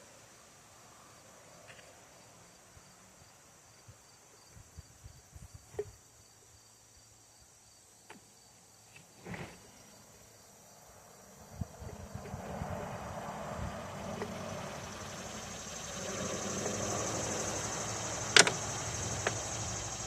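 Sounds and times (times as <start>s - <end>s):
faint high-pitched pulsing: 13.5s - 20.0s.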